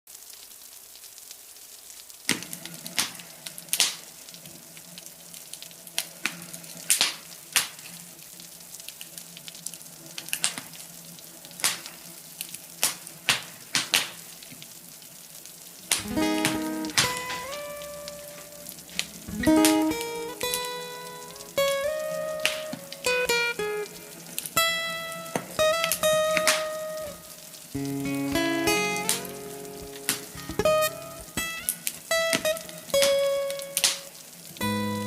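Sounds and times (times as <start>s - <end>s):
rain hissing: 0.1s - 35.0s
campfire crackling and popping: 0.2s - 35.0s
acoustic guitar strummed chord: 16.0s - 22.7s, 27.8s - 31.6s.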